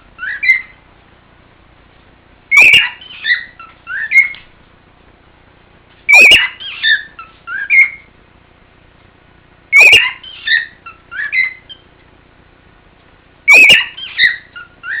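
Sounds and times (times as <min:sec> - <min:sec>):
cockatiel whistling: 0:00.2 - 0:00.8, 0:02.5 - 0:04.4, 0:06.1 - 0:08.1, 0:09.7 - 0:11.8, 0:13.5 - 0:15.0.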